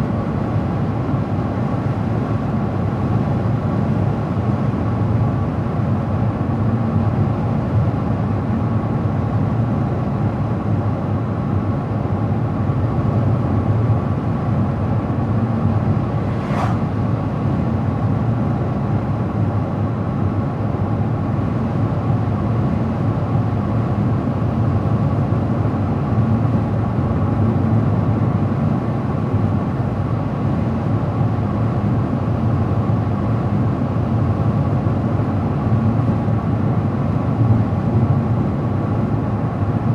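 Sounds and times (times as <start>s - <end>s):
car driving on road: 14.3s - 18.4s.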